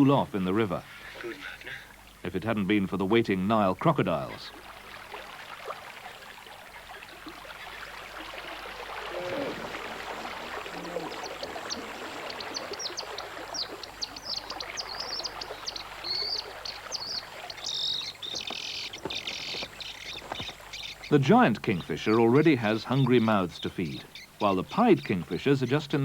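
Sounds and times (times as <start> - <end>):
background hiss: 0.0 - 26.0.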